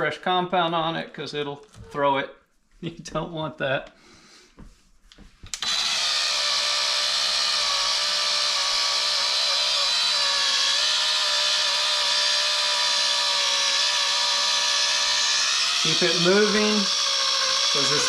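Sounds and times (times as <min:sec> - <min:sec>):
cordless polisher motor running: 0:05.5 - 0:18.0.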